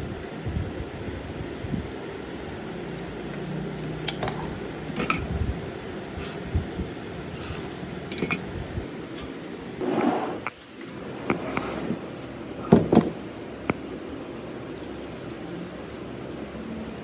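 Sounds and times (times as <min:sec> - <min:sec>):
rustling scrape: 0:09.8 - 0:13.2
tools and wood knocking: 0:12.7 - 0:13.8.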